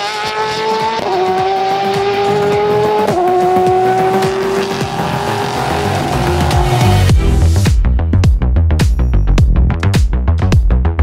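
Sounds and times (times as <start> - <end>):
racing car engine accelerating: 0.0 - 7.6.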